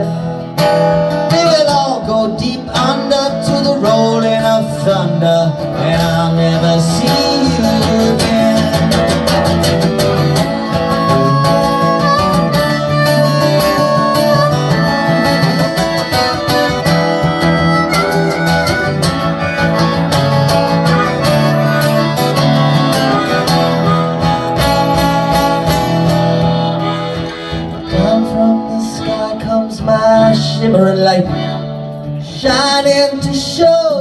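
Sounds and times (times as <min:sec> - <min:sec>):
strummed acoustic guitar: 0:00.0 - 0:34.0
wavering lead melody: 0:06.8 - 0:29.7.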